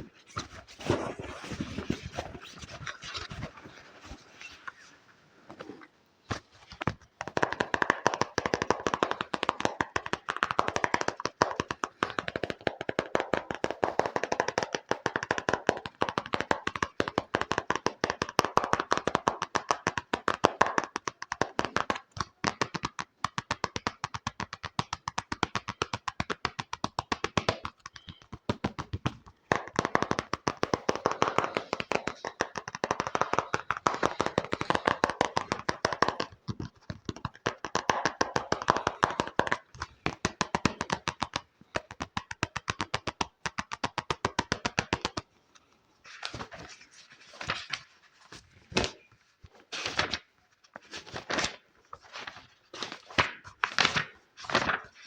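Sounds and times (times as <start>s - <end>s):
rapid finger tapping: 6.8s - 45.3s.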